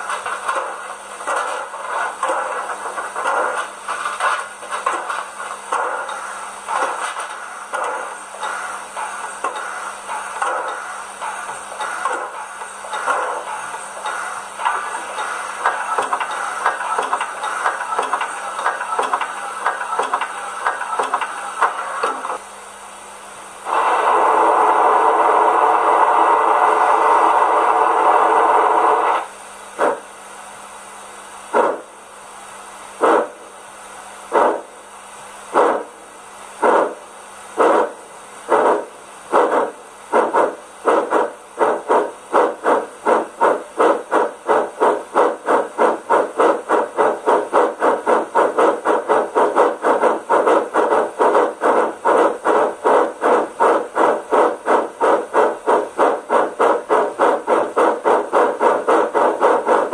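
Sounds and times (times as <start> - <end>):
steam locomotive exhaust chuffs: 0.0 - 59.9
steam hiss from small loudspeaker: 23.2 - 59.9.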